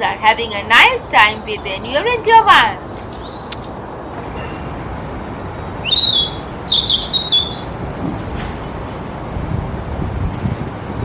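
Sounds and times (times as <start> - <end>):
sparrows chirping: 0.0 - 3.9, 5.4 - 8.2, 9.4 - 9.8
steady background hiss: 0.0 - 11.0.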